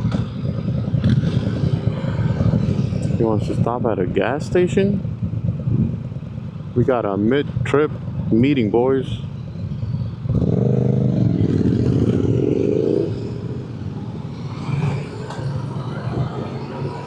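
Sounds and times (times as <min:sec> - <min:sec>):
motorcycle engine accelerating: 0:00.0 - 0:03.2, 0:10.1 - 0:17.0.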